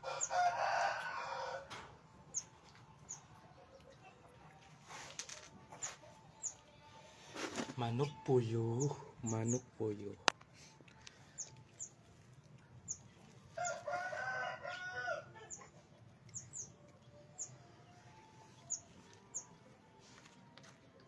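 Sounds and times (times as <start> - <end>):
rooster crowing: 0.0 - 1.8, 13.6 - 15.4
small birds chirping: 2.3 - 4.6, 5.6 - 14.2, 15.4 - 20.0.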